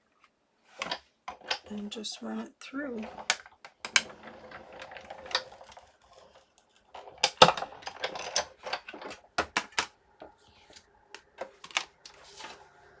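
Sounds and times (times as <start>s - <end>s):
die-cutting machine clicking and clunking: 3.0s - 6.2s, 6.9s - 9.9s.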